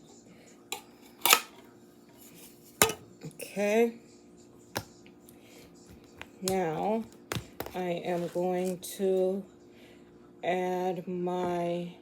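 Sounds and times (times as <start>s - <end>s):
utensils and dishes clinking: 0.7s - 3.1s.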